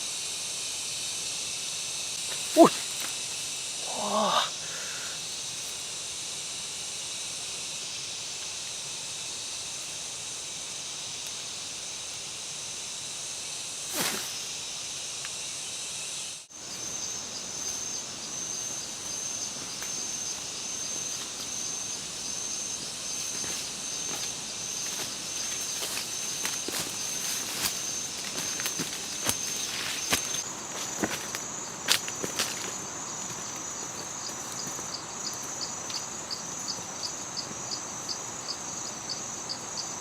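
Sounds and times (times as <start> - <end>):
high-pitched insect chorus: 0.0 - 40.0
pulsing insect tone: 0.0 - 40.0.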